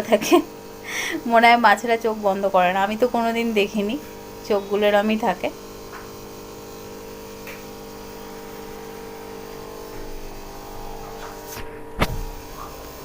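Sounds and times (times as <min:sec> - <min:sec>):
electric buzzing hum: 0:00.0 - 0:13.0
sharp loud click: 0:11.2 - 0:12.4.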